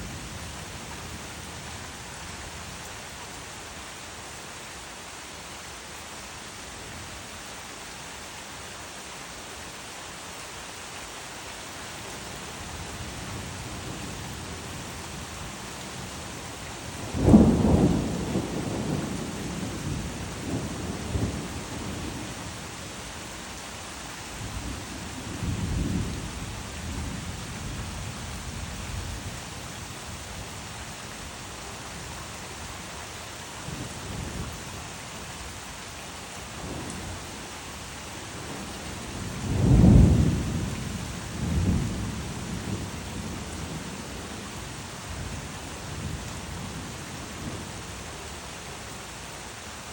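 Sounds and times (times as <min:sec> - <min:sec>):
steady rainfall: 0:00.0 - 0:49.9
thunder rumbling: 0:17.0 - 0:22.3, 0:38.4 - 0:43.8.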